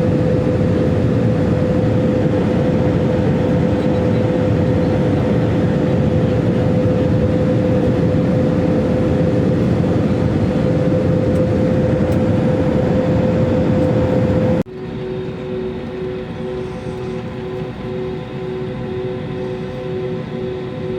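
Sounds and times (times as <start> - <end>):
airliner engines droning: 0.0 - 20.9.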